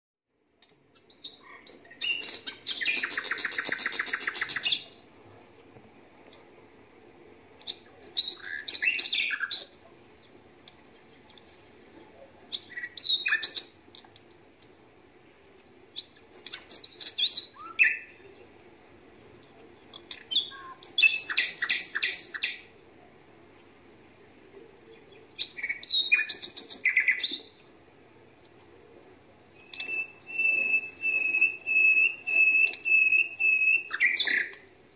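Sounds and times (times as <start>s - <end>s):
songbird trilling and chirping: 0.6s - 5.1s, 7.6s - 14.0s, 15.9s - 18.6s, 19.8s - 22.7s, 24.9s - 27.7s, 29.5s - 34.6s.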